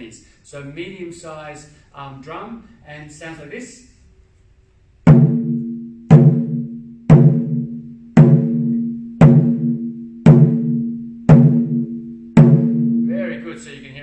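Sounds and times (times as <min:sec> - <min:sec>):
taiko drum booming: 0:05.1 - 0:13.7.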